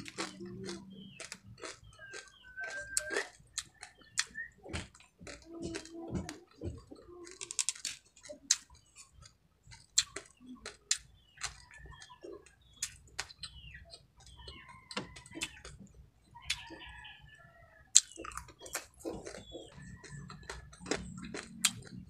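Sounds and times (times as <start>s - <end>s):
wet mouth sounds: 0.0s - 8.7s, 18.0s - 22.0s
chewing crispy crabs: 0.0s - 22.0s
shells cracking between teeth: 7.3s - 8.7s.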